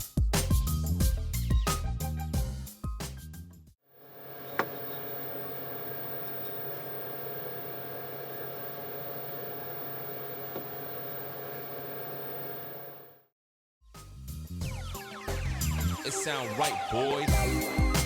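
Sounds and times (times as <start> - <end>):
cnc router humming: 4.0 - 13.2
background music: 14.0 - 18.0.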